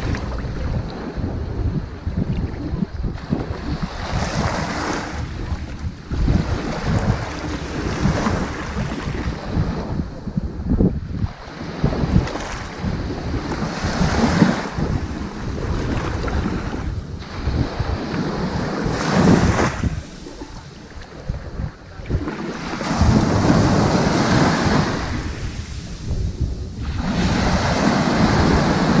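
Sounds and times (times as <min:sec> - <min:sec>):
ocean waves breaking on beach: 0:00.0 - 0:29.0.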